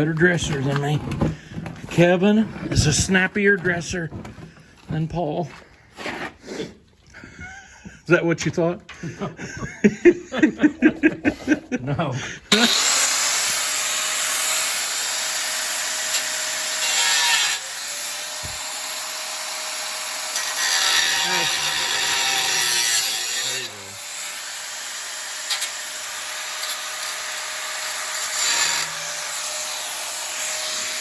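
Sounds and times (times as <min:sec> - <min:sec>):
angle grinder grinding steel: 0:12.5 - 0:31.0.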